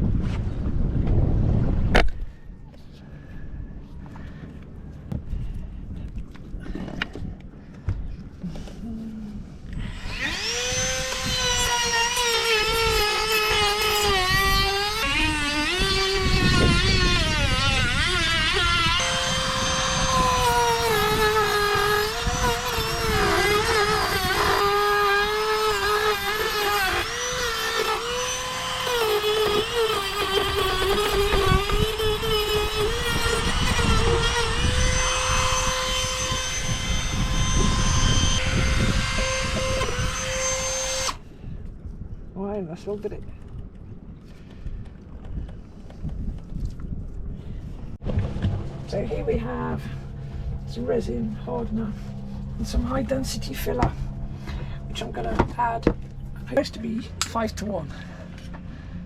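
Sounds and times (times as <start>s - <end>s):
power tool motor whining: 9.7s - 41.2s.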